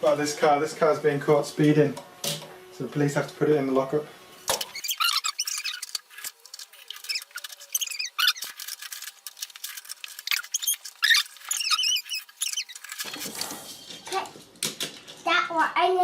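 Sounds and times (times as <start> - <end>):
plastic toys clicking and rattling: 4.5 - 15.7
high-pitched wavering squeaks: 4.7 - 13.2.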